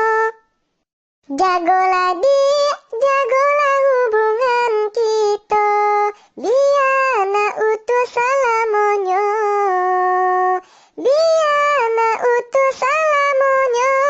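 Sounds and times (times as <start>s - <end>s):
high voice holding long notes: 0.0s - 0.4s, 1.3s - 14.0s.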